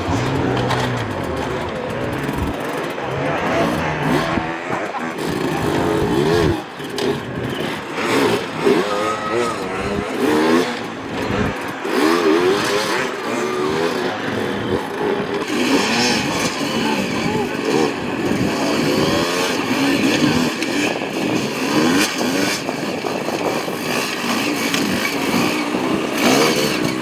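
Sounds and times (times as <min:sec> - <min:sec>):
higher-pitched engine note: 0:00.0 - 0:04.7
dirt bike engines revving: 0:00.0 - 0:27.0.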